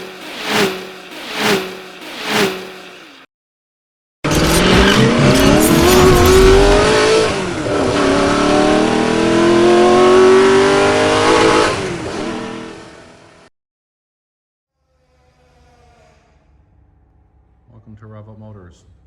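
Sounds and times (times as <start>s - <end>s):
car engine accelerating hard: 4.3s - 13.4s.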